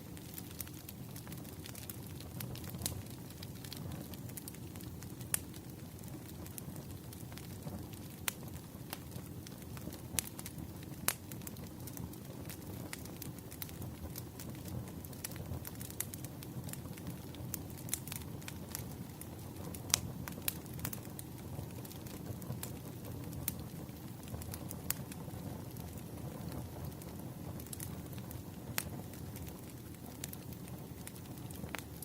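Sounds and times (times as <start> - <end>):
wood fire crackling and popping: 0.0 - 32.0.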